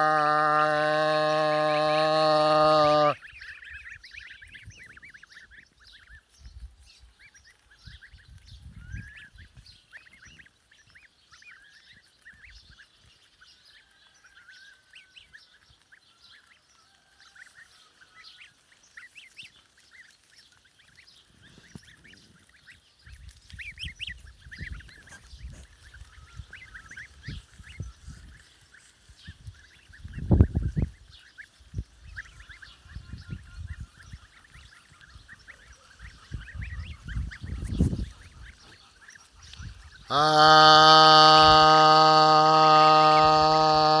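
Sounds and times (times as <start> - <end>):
waterfowl calling: 0.0 - 5.6, 32.2 - 44.0.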